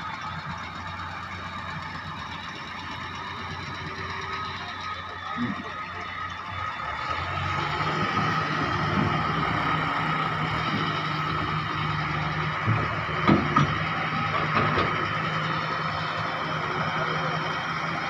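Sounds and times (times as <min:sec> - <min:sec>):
excavator diesel engine running: 0:00.0 - 0:18.0
short clunks: 0:12.5 - 0:15.4.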